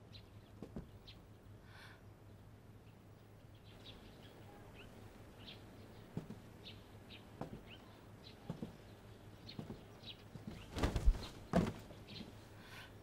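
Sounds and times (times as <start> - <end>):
soft thumps: 6.1 - 6.5, 7.4 - 7.8, 8.4 - 8.8, 9.5 - 11.9.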